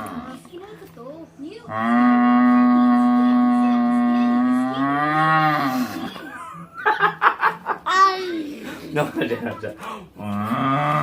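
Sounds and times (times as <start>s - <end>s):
person imitating cow moo through tube: 1.7s - 6.1s, 10.2s - 11.0s.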